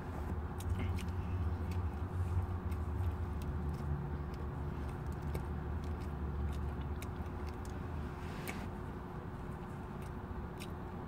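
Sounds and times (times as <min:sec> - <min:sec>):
chewing with mouth open: 0:00.1 - 0:11.0
wet mouth clicks: 0:00.6 - 0:01.9, 0:02.5 - 0:07.8, 0:10.0 - 0:10.9.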